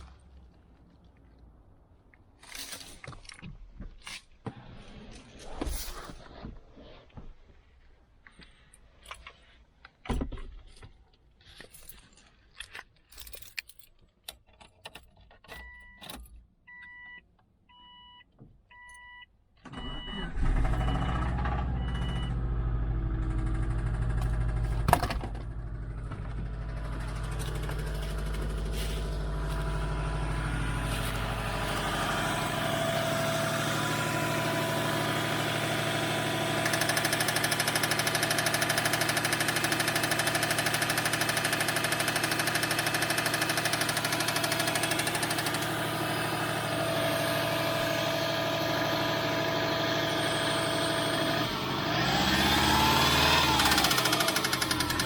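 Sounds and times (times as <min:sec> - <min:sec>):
car engine idling with knocking: 0:23.2 - 0:55.0.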